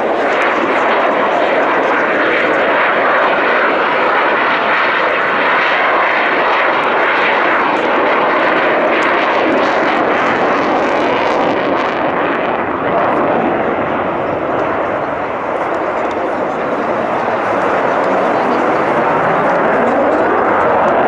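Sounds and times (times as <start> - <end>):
airplane engine rushing noise: 0.0 - 21.0.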